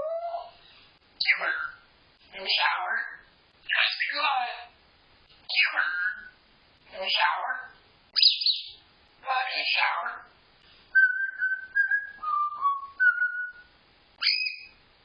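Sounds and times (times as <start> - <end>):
parrot harsh squawks: 1.2 - 1.8, 5.5 - 6.3, 14.2 - 14.7
parrot whistled notes: 11.0 - 14.8.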